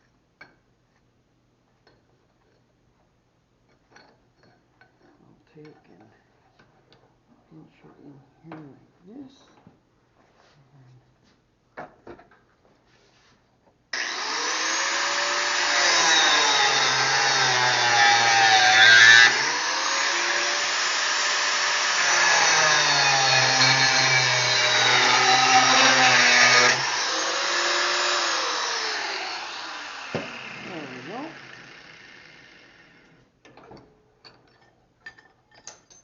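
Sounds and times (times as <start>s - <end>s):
angle grinder cutting metal pipe: 14.0s - 33.2s.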